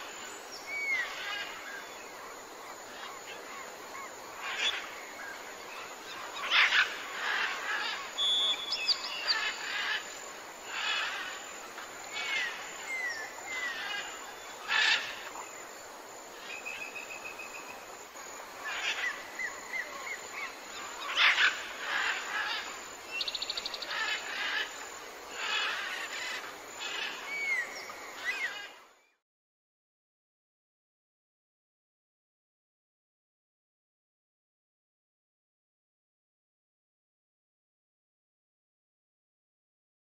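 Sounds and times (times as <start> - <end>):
songbirds calling: 0.0 - 29.2
steady outdoor hiss: 0.0 - 29.2
bird trill: 6.4 - 10.0.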